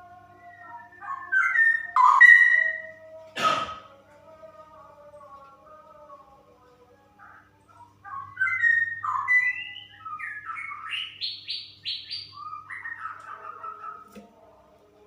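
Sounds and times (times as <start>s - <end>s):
bird singing liquid notes: 1.0s - 2.9s.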